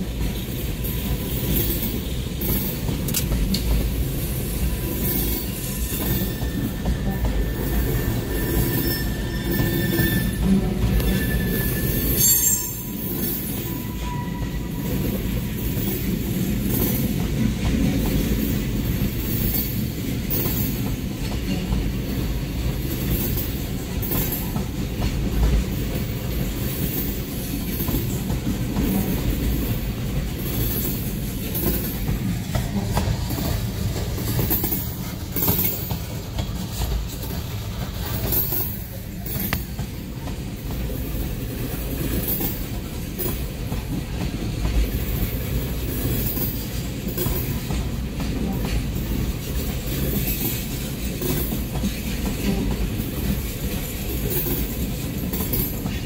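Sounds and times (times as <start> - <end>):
freight train rumbling: 0.0 - 56.0
wheels clacking over rail joints: 12.4 - 56.0.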